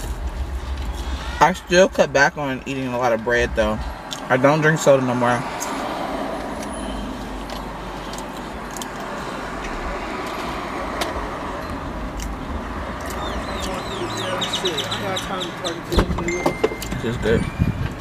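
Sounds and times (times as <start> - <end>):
car engine idling: 0.0 - 18.0
person chewing food: 7.4 - 12.4.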